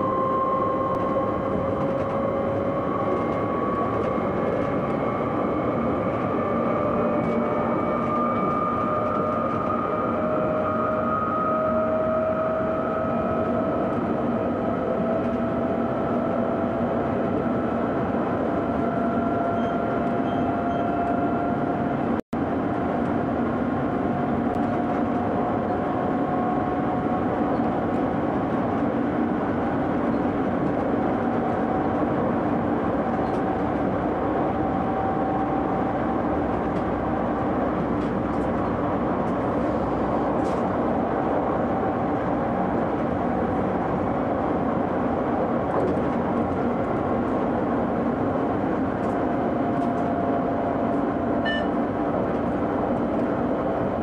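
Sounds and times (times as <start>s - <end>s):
train wheels rumbling on rail: 0.0s - 54.0s
brief high tone: 51.4s - 51.8s.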